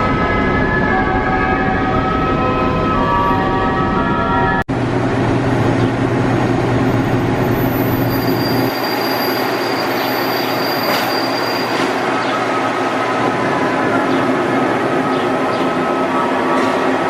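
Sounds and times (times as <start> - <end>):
train wheels rumbling on track: 4.0 - 17.0
high wheel squeal: 7.4 - 12.4.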